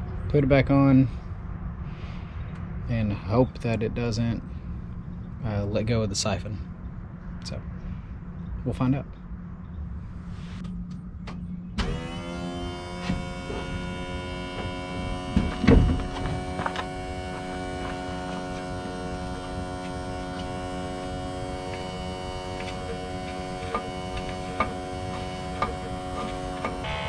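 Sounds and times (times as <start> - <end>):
electric fuel pump humming: 11.2 - 27.0.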